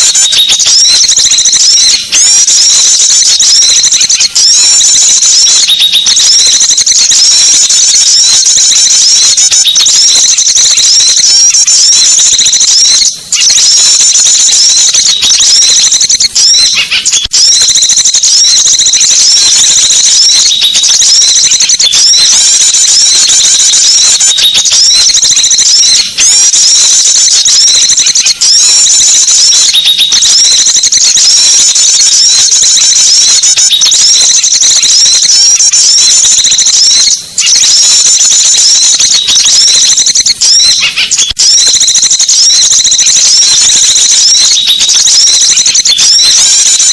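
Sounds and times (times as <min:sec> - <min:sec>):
small songbirds chattering: 0:00.0 - 0:17.7, 0:18.5 - 0:35.4, 0:40.7 - 0:41.4.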